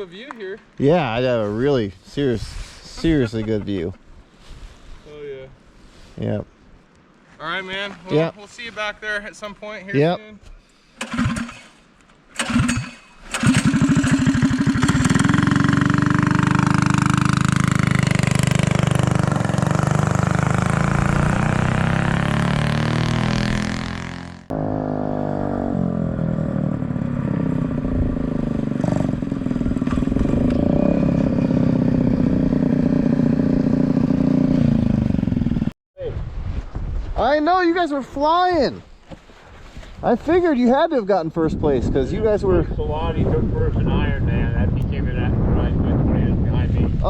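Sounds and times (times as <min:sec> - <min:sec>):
small engine running: 0:12.4 - 0:17.9.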